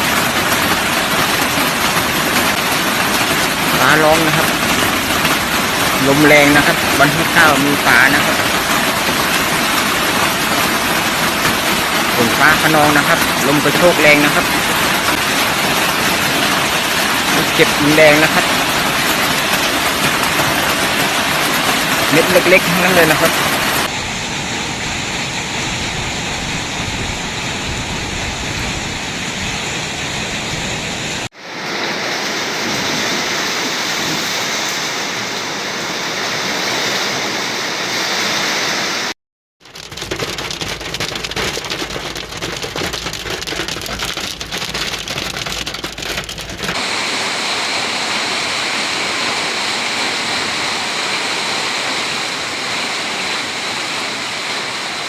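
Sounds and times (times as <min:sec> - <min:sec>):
hail rattling: 0:00.0 - 0:23.9, 0:39.6 - 0:46.9
heavy rain: 0:00.0 - 0:55.0.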